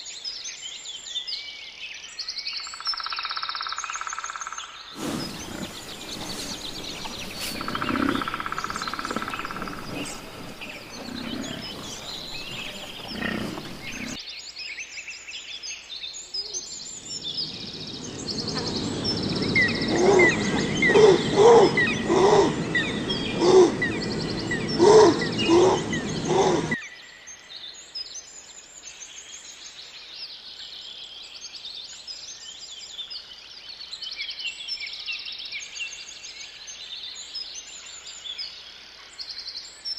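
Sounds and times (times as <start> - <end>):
birds chirping: 5.0 - 14.2, 16.8 - 26.8
loud repeated animal calls: 5.0 - 14.2, 17.7 - 26.8.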